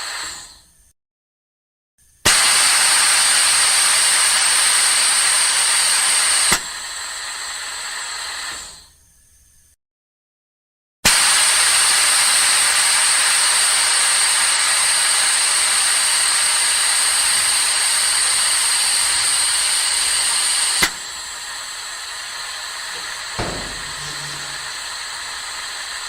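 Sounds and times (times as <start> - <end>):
pressurised gas hissing: 0.0 - 0.7, 2.3 - 9.0, 11.3 - 26.0
soft thump: 23.0 - 25.0.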